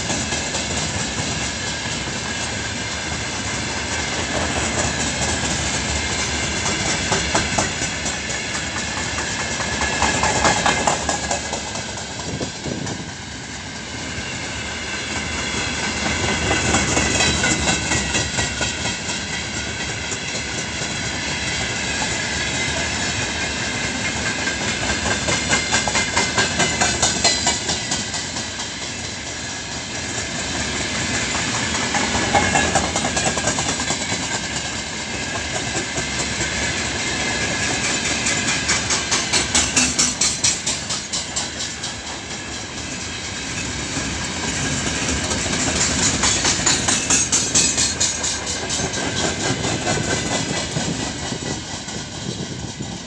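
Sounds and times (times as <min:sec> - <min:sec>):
train wheels clattering over rail joints: 0:00.0 - 0:13.2, 0:15.1 - 0:53.0.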